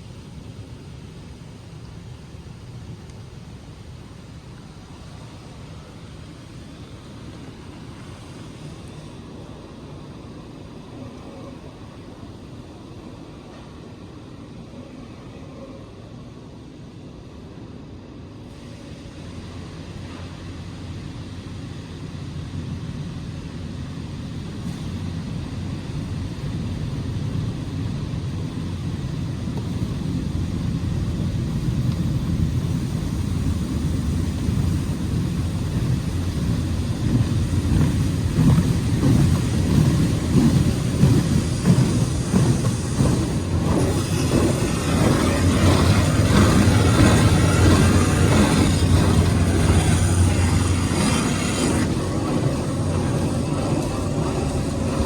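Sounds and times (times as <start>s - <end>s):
car wash machinery rumble: 18.5s - 55.0s.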